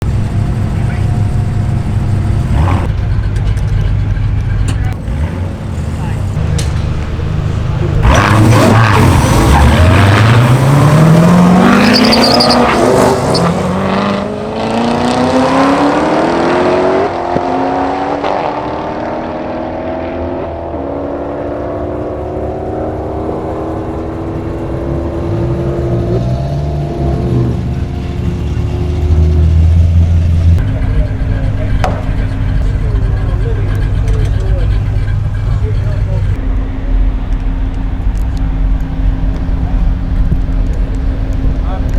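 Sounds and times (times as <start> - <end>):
race car engines at full throttle: 0.0 - 41.9.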